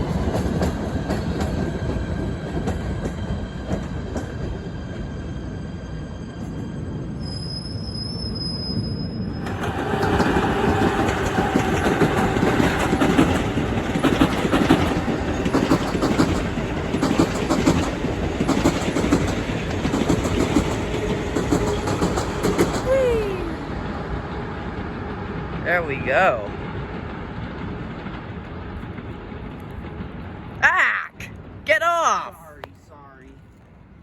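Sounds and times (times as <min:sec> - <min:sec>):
train passing on rails: 0:00.0 - 0:34.0.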